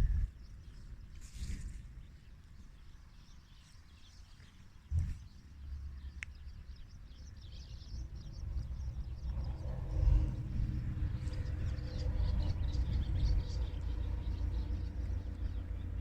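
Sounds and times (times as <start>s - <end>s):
low rumble on microphone: 0.0s - 3.4s, 4.2s - 16.0s
birds chirping: 0.0s - 16.0s.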